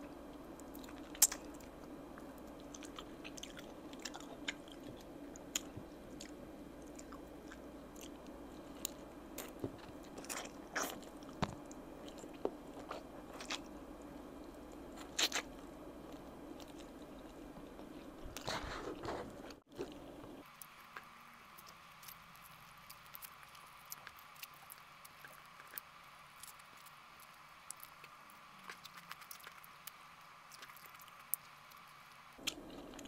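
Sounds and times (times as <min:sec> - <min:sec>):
chewing and biting: 0:00.6 - 0:13.7, 0:14.9 - 0:33.0
chicken skin crackling: 0:19.7 - 0:33.0.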